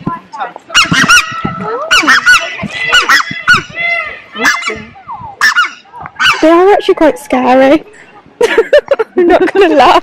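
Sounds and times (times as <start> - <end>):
geese honking: 0.7 - 6.6.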